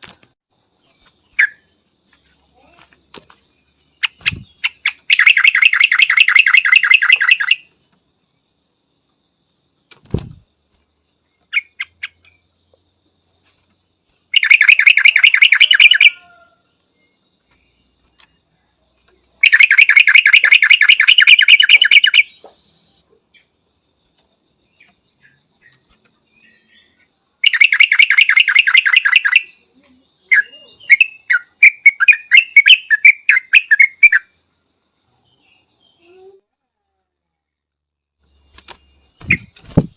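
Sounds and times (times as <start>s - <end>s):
bird chirps: 0.7s - 7.8s, 11.2s - 12.8s, 13.4s - 36.4s, 38.2s - 39.9s
bird chattering calls: 4.0s - 7.6s, 14.4s - 16.2s, 19.4s - 22.5s.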